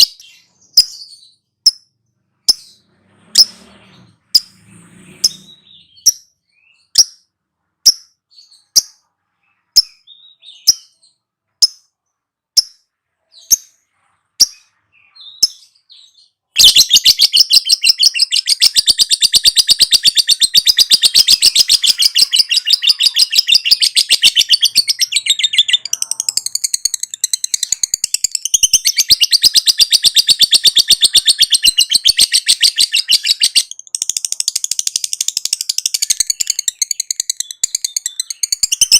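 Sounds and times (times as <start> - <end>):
bird chirping: 0.0 - 38.9
bird fast chattering trill: 16.6 - 38.9.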